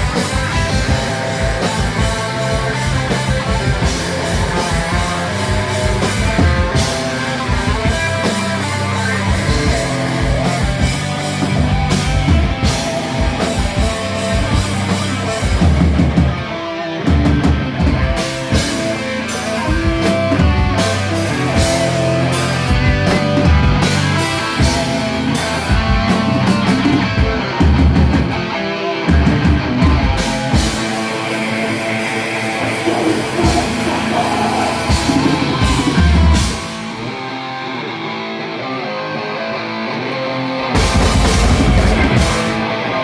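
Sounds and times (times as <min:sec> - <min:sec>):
metal band playing: 0:00.0 - 0:43.0.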